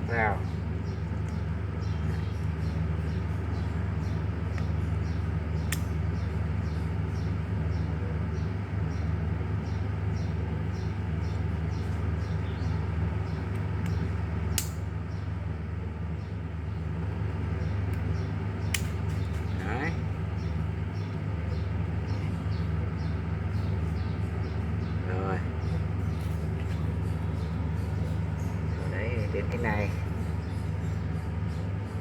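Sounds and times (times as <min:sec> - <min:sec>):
steady low hum: 0:00.0 - 0:32.0
sharp clicks: 0:13.5 - 0:14.8.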